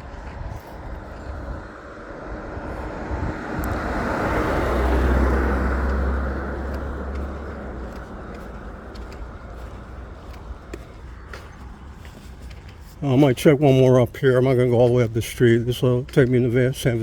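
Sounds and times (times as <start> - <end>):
car passing by: 0.0 - 13.0.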